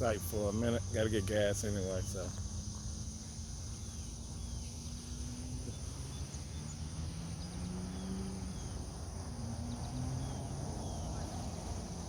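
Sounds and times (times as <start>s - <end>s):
crickets chirping: 0.0s - 12.0s
faint bird chirps: 3.2s - 12.0s.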